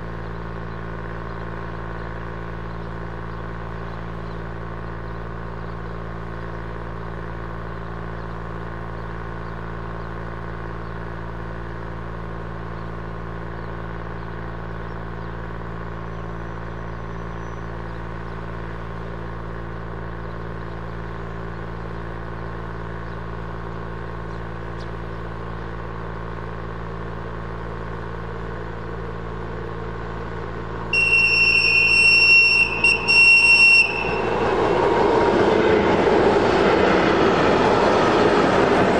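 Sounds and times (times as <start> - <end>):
train mechanical hum: 0.0 - 38.9
train horn blast: 30.9 - 34.5.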